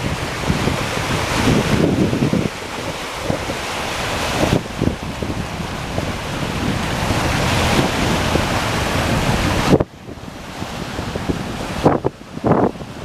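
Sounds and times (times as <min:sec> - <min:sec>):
waves splashing: 0:00.0 - 0:13.0
wind buffeting microphone: 0:00.0 - 0:13.0.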